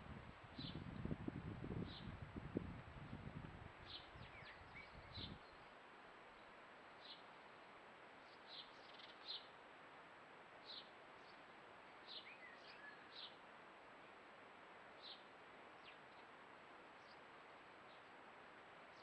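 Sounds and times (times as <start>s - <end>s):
background hiss: 0.0s - 19.0s
small birds chirping: 0.6s - 1.2s, 3.8s - 7.3s, 8.2s - 9.6s, 10.6s - 13.4s, 15.0s - 18.1s.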